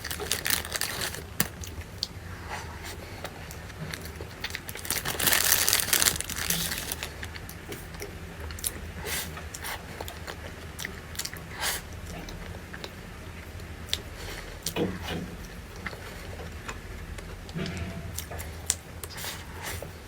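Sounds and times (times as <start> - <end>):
crinkling: 0.0 - 1.8, 2.6 - 7.8
person chewing crunchy food: 0.0 - 14.8.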